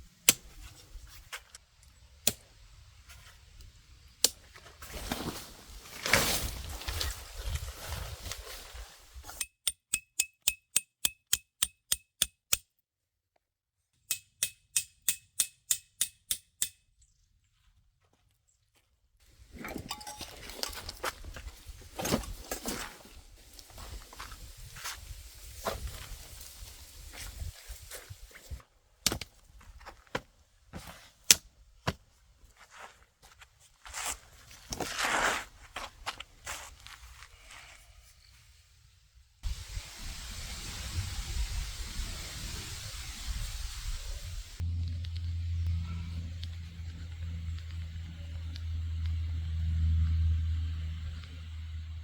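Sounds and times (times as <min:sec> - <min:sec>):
hammer striking metal stake: 0:09.4 - 0:12.6, 0:14.1 - 0:16.8, 0:19.8 - 0:20.8.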